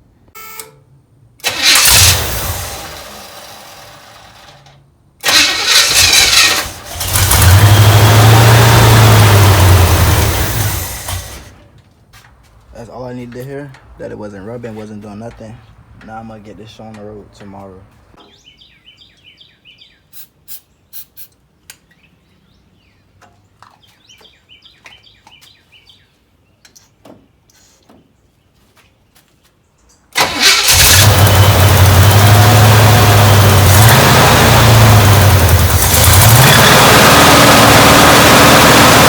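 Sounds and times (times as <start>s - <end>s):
car engine running: 5.3s - 11.6s, 30.7s - 39.0s.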